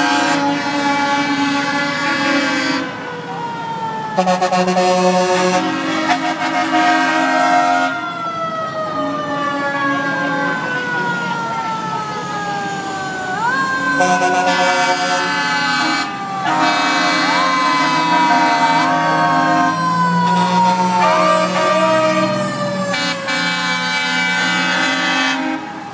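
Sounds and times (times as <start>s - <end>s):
horn blasts: 0.0s - 3.0s, 4.2s - 8.0s, 14.0s - 25.8s
siren winding up and down: 7.6s - 25.9s.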